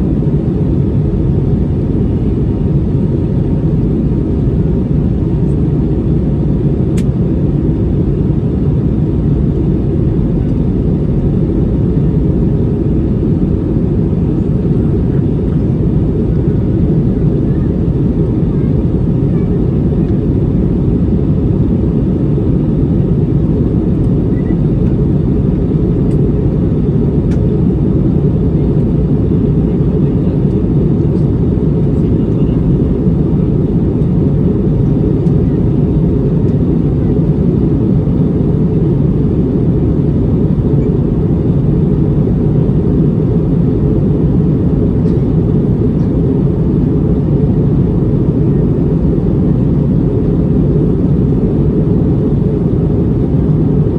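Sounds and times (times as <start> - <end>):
airliner engine drone: 0.0 - 53.9.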